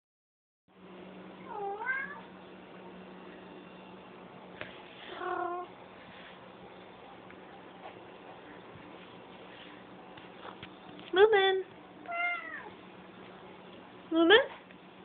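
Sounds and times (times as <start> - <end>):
steady low hum: 0.7 - 15.0
cat trilling: 12.1 - 12.7.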